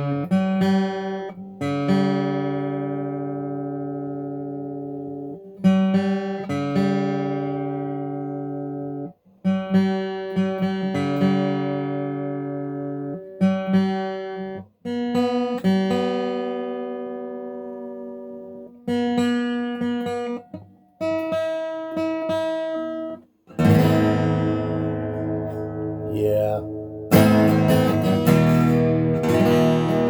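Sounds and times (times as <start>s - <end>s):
acoustic guitar strummed: 21.1s - 30.0s.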